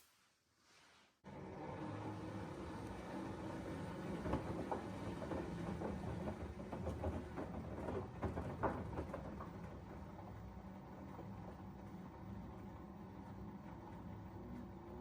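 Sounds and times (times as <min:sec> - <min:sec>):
washing machine motor hum: 0:01.3 - 0:15.0
wet laundry tumbling in drum: 0:03.6 - 0:10.2.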